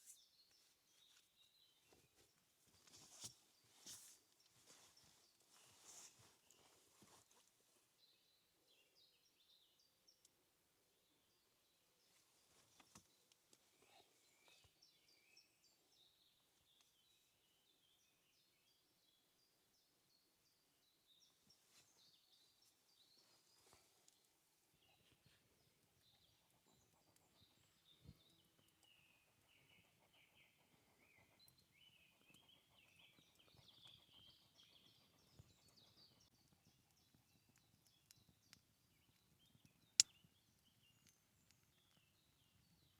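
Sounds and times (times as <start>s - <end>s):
birds chirping and trilling: 24.8s - 38.2s.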